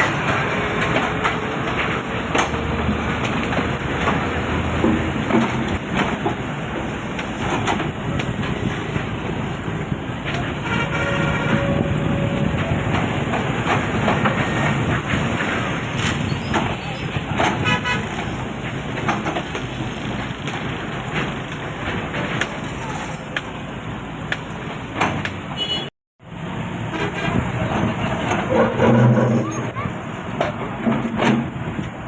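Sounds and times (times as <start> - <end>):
sharp knocks and cracks: 0.0 - 9.1, 12.6 - 23.6, 24.3 - 25.5
excavator diesel engine running: 0.0 - 25.2.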